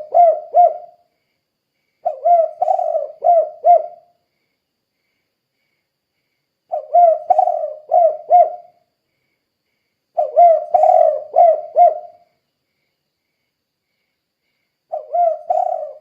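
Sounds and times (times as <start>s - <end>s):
dove cooing: 0.0s - 1.0s, 2.0s - 4.1s, 6.7s - 8.8s, 10.2s - 12.3s, 14.9s - 16.0s.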